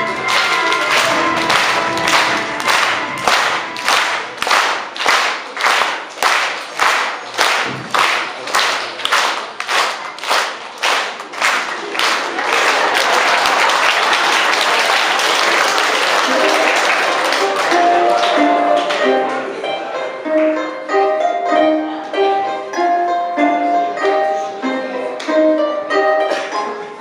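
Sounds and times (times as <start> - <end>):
audience clapping in unison: 0.0 - 19.4
audience applause: 0.0 - 19.5.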